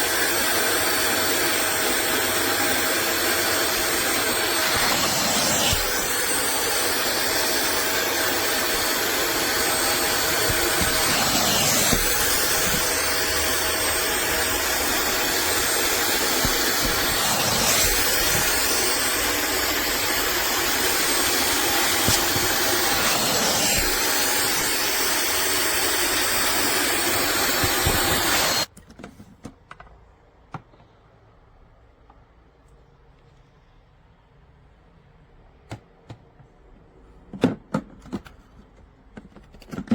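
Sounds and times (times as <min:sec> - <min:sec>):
wet vacuum motor whining: 0:00.0 - 0:28.7.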